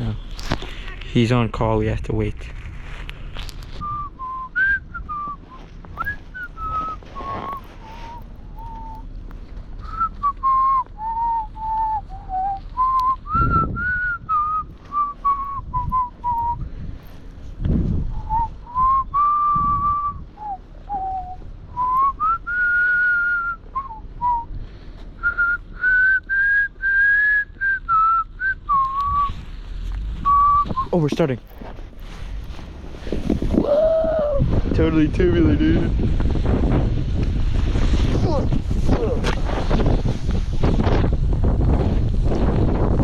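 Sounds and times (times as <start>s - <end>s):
person whistling a tune: 3.8s - 9.0s, 9.8s - 16.7s, 18.1s - 24.5s, 25.2s - 29.4s, 30.2s - 31.0s.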